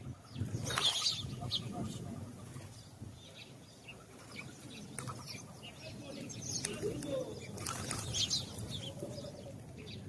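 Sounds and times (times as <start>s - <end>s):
sparrows chirping: 0.0s - 10.0s
sharp flutter-like clicks: 6.6s - 8.3s.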